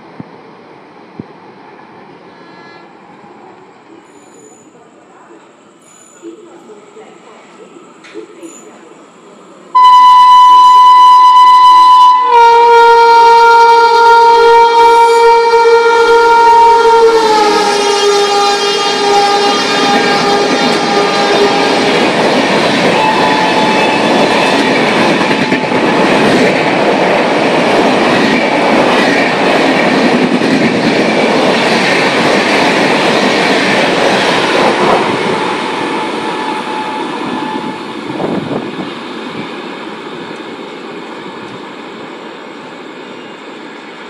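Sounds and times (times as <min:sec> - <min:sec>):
train rolling rumble: 0:00.0 - 0:09.8, 0:12.3 - 0:44.0
locomotive horn: 0:09.8 - 0:22.0, 0:23.0 - 0:24.0.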